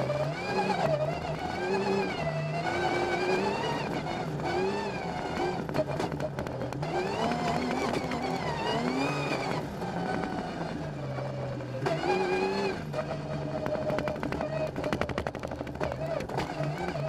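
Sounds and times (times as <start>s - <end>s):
rally car engine revving: 0.0s - 17.0s
sharp clicks and ticks: 13.0s - 17.0s.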